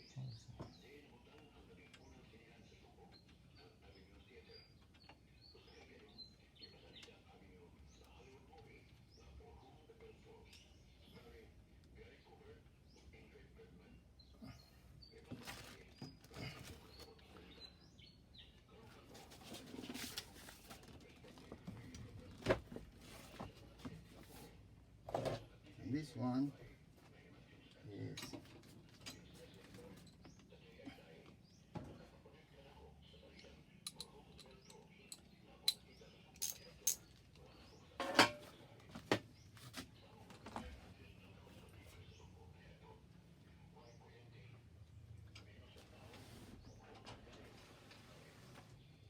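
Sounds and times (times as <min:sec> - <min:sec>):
metal tools clinking and clanking: 0:33.9 - 0:37.3, 0:38.0 - 0:38.5
hand tools clicking and knocking: 0:36.4 - 0:37.2.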